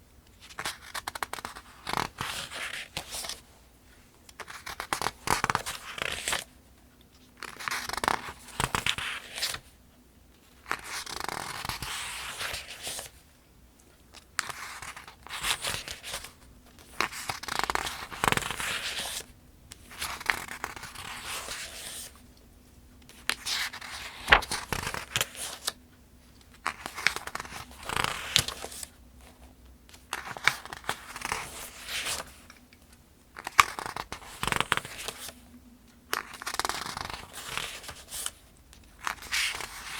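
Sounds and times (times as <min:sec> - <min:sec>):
pages turning: 0:04.3 - 0:06.5, 0:07.4 - 0:09.6, 0:10.6 - 0:13.1, 0:14.1 - 0:22.2, 0:23.0 - 0:25.8, 0:26.4 - 0:28.9, 0:29.9 - 0:32.8, 0:33.4 - 0:35.4, 0:36.1 - 0:38.4, 0:39.0 - 0:39.9.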